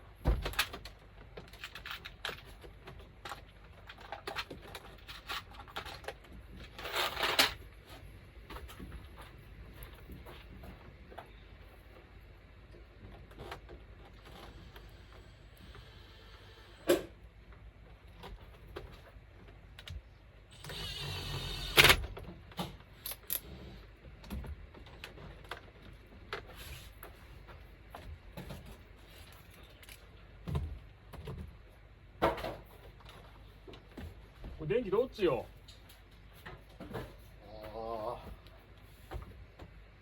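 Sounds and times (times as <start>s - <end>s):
small power tool whirring: 14.4s - 16.9s, 20.5s - 22.0s.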